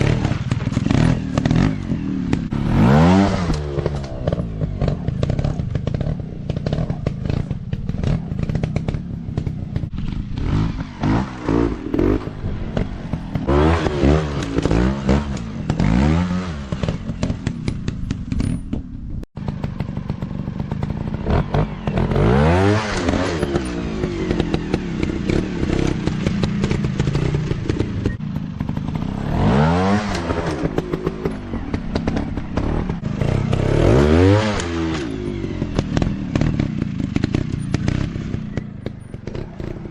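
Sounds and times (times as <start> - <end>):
dirt bike engines revving: 0.0 - 18.7, 19.4 - 39.9
knocks and rattles: 16.6 - 22.1.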